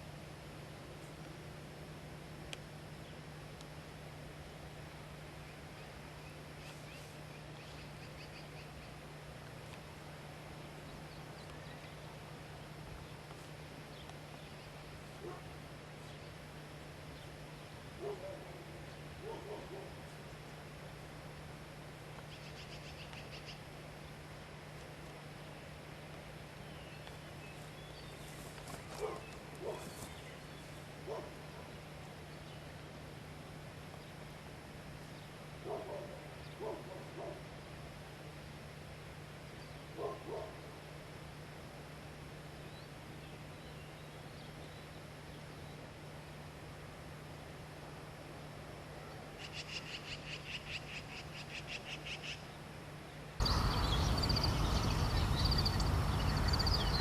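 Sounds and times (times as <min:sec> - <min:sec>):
steady hiss and low hum: 0:00.0 - 0:57.0
songbird calls: 0:05.4 - 0:09.0, 0:22.2 - 0:24.2, 0:26.6 - 0:32.7, 0:49.1 - 0:52.6, 0:53.4 - 0:57.0
faint high bird chirps: 0:53.4 - 0:57.0.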